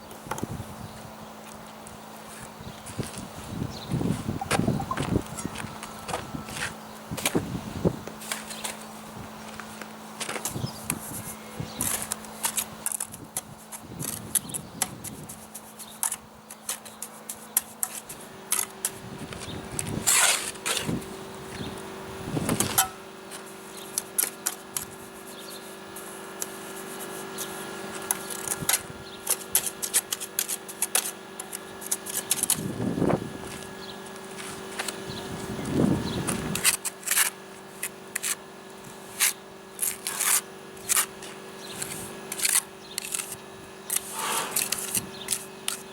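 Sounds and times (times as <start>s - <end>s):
steady hum: 0.0s - 45.9s
trowel scraping mortar: 10.7s - 21.1s, 22.6s - 32.7s, 36.2s - 45.9s.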